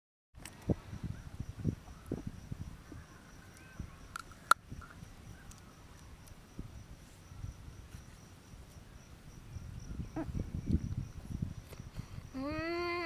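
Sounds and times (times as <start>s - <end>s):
crickets chirring: 0.4s - 13.0s.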